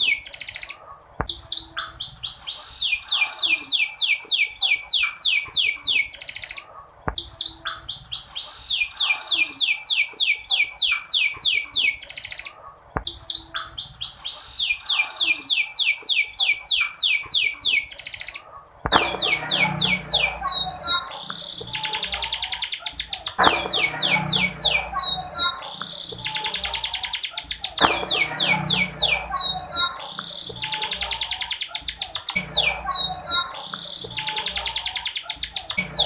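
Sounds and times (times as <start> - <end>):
canary chirping: 0.0 - 36.0.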